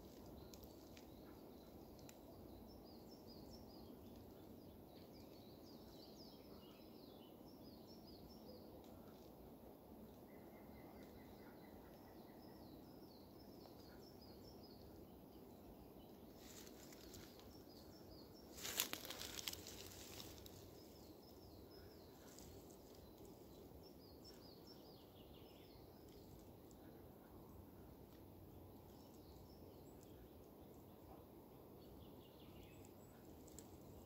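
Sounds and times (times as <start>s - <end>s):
crackling rustle: 0.0s - 2.6s, 16.0s - 24.8s, 32.7s - 34.0s
faint background noise: 0.0s - 34.0s
small birds chirping: 0.0s - 34.0s.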